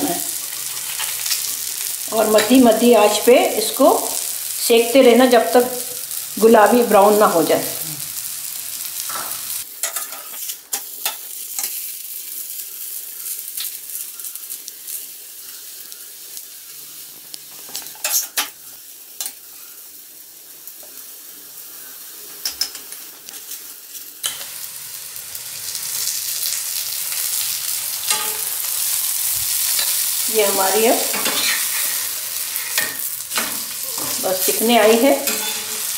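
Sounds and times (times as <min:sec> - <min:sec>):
sharp crackles and clicks: 0:00.0 - 0:04.7
flatbread sizzling in ghee: 0:00.0 - 0:35.9.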